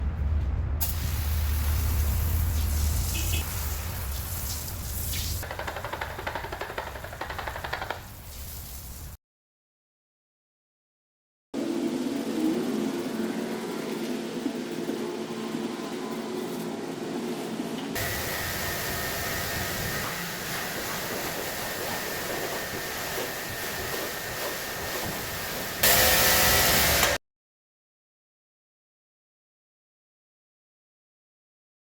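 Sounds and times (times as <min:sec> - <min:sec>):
water spraying onto car: 0:00.8 - 0:05.4
car wash equipment hissing: 0:00.8 - 0:05.5, 0:18.0 - 0:27.2.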